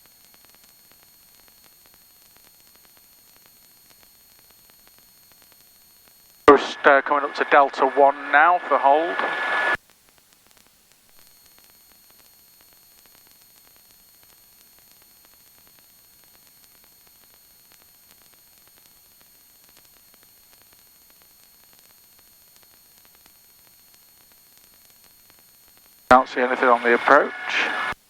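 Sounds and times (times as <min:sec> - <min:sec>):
electronic radio hiss: 0:06.5 - 0:09.8, 0:26.1 - 0:28.0
high-pitched whines: 0:06.5 - 0:09.8, 0:26.1 - 0:28.0
light crackling: 0:06.5 - 0:09.8, 0:26.1 - 0:28.0.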